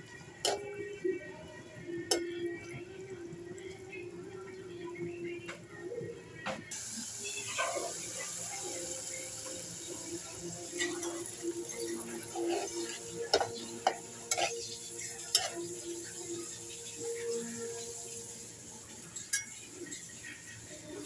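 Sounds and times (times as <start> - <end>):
fish sizzling in a pot: 6.7 - 21.0.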